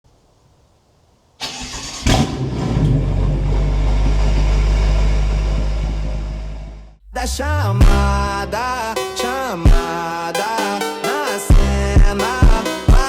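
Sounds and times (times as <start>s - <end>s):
car engine starting and idling: 1.4s - 9.0s.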